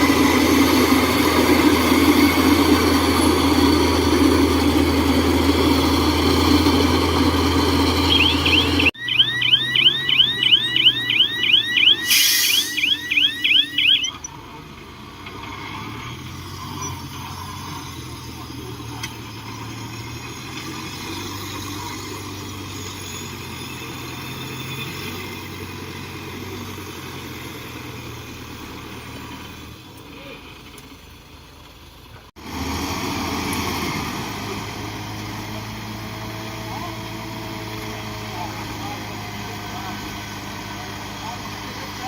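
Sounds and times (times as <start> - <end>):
heavy machine engine humming: 0.0 - 15.4
fast electronic chirping alarm: 7.8 - 14.2.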